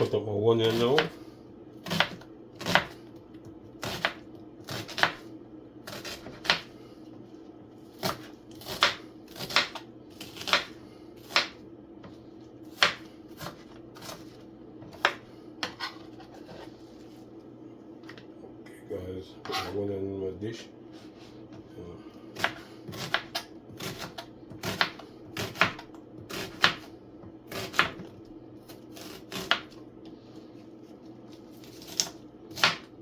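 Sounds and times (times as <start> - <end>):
steady low hum: 0.0 - 33.0
knife cutting on cutting board: 14.9 - 16.7, 19.4 - 19.8.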